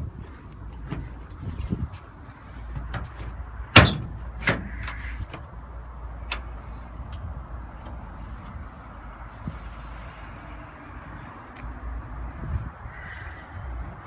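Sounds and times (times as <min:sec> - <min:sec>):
truck door shutting: 0:02.8 - 0:05.4.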